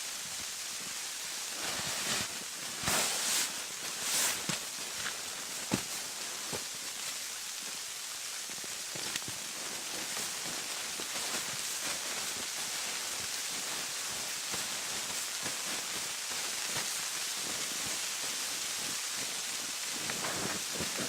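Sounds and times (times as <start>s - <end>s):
wind and snow against tent fabric: 0.0s - 21.0s.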